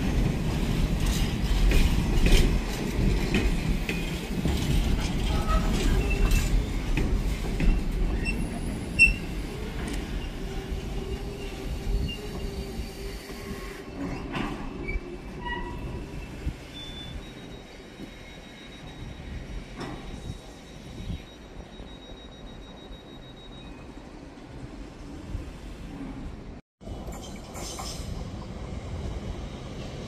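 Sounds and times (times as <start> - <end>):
train rumble: 0.0 - 21.6, 24.0 - 30.0
wheel squeals: 4.0 - 7.0, 7.6 - 24.2.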